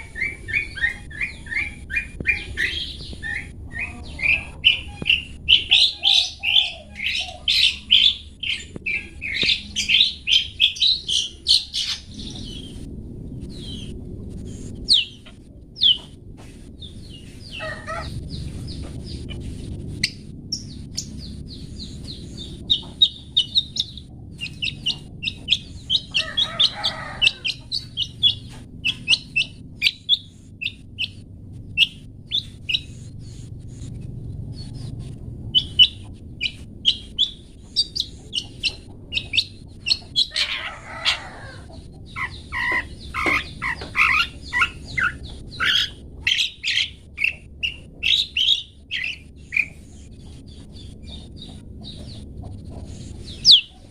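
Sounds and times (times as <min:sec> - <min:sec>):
bird chirping song: 0:00.0 - 0:53.9
low steady hum: 0:00.0 - 0:53.9
harsh descending bird calls: 0:17.1 - 0:18.4, 0:20.6 - 0:31.1, 0:35.6 - 0:49.7.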